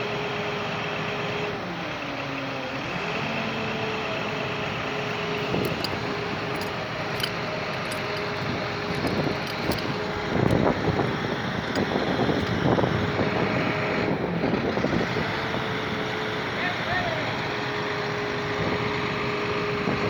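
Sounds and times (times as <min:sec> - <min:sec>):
road noise: 0:01.6 - 0:20.0
vehicle engine running: 0:03.9 - 0:16.6
light rattling clicks: 0:05.4 - 0:12.9.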